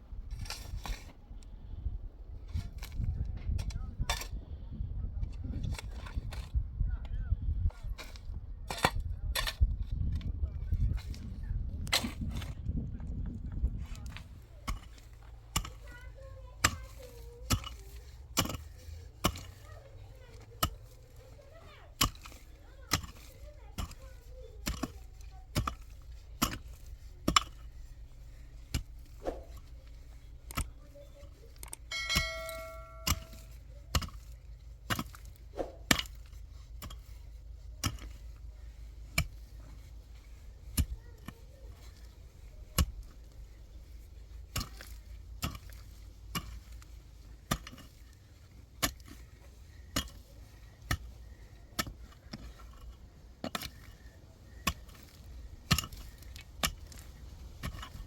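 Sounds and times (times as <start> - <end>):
low steady rumble: 0.0 - 58.0
brief ringing tone: 31.9 - 33.2.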